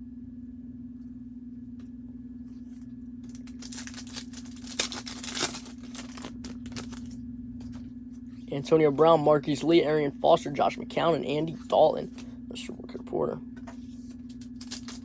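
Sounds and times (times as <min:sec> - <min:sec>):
steady low hum: 0:00.0 - 0:15.0
card pack wrapper tearing: 0:03.2 - 0:07.2, 0:14.3 - 0:15.0.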